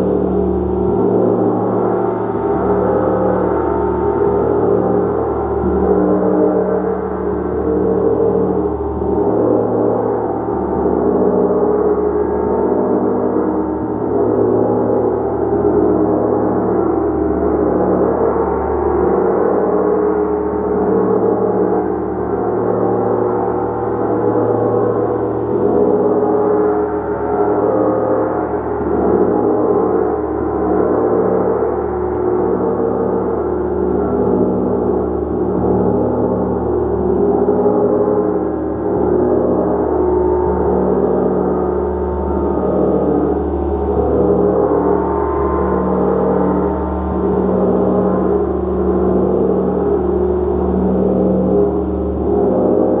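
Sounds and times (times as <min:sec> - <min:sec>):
gong wash of tones: 0:21.6 - 0:53.0.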